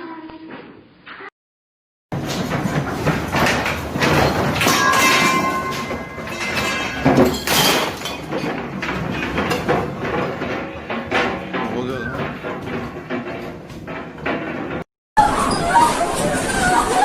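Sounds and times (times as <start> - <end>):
objects rattling and banging: 2.1 - 17.0.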